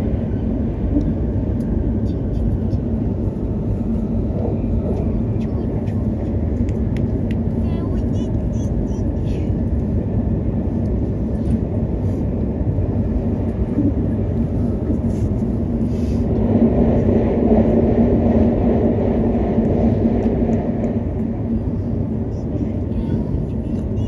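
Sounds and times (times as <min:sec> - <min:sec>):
passing train: 0:00.0 - 0:24.0
train cabin rumble: 0:00.0 - 0:24.0.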